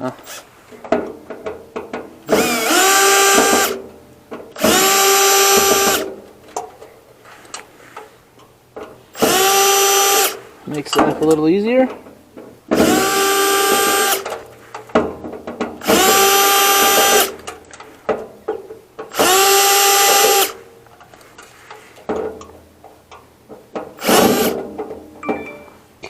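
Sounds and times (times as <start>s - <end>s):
power drill backing out screws: 2.2s - 3.8s, 4.6s - 6.1s, 9.1s - 10.4s, 12.8s - 14.5s, 15.8s - 17.6s, 19.1s - 20.6s, 23.9s - 24.6s.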